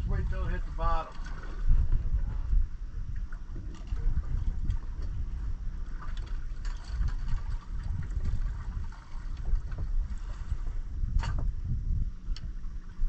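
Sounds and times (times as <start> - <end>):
water lapping against boat hull: 0.0 - 13.0
wind buffeting microphone: 0.0 - 13.0.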